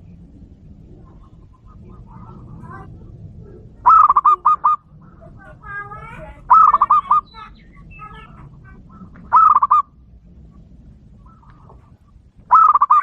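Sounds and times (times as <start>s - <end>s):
doves cooing: 0.0s - 13.0s
soft bird chirps: 6.5s - 9.9s.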